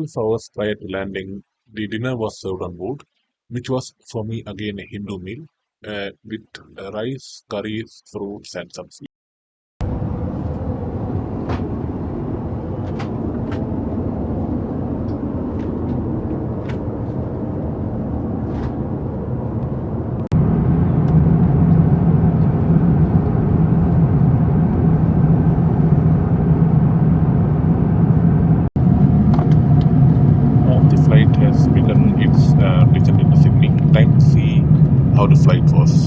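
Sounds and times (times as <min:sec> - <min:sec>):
aircraft cabin engine rumble: 0:09.8 - 0:36.0
low hum: 0:09.8 - 0:36.0.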